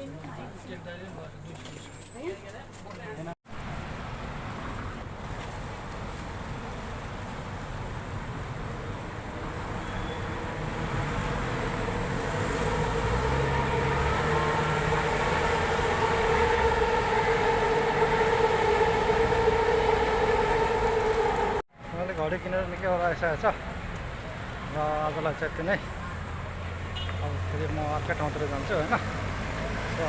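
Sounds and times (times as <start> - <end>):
rumble of train cars: 9.0 - 21.6
two-tone train motor whine: 11.6 - 21.6.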